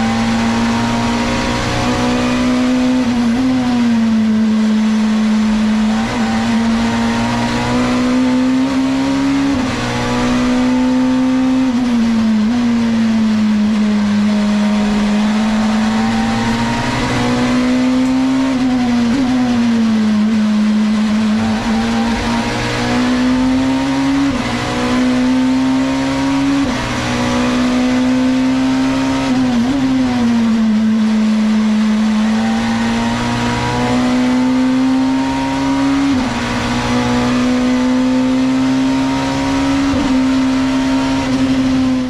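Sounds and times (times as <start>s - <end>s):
racing car engine revving: 0.0s - 42.0s
tyre squeal: 21.2s - 23.4s.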